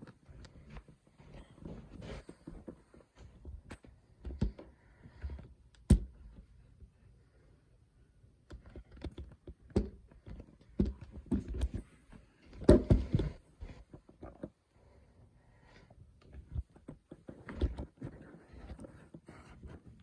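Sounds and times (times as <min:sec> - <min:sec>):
irregular clicks and taps: 0:02.2 - 0:06.5, 0:08.4 - 0:11.8.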